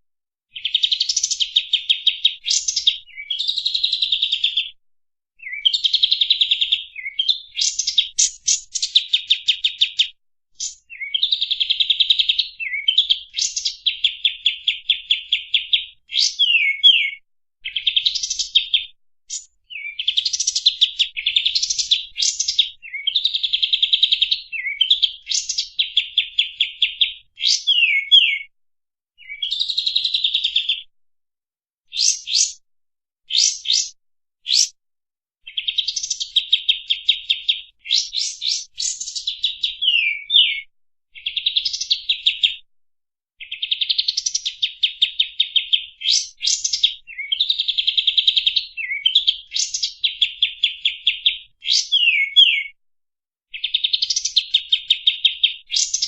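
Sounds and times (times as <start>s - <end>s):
songbird rising and falling whistles: 16.1s - 18.5s, 27.4s - 28.5s, 31.9s - 32.6s, 33.3s - 34.8s, 37.2s - 40.7s, 51.6s - 52.8s.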